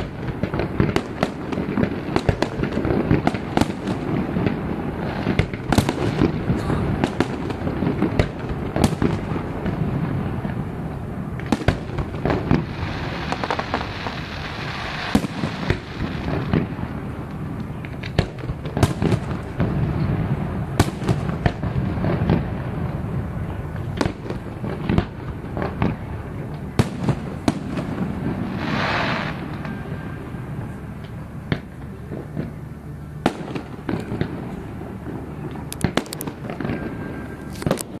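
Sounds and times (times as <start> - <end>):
crackling hiss of fireworks: 0.0 - 38.0
firework shells bursting: 35.4 - 38.0.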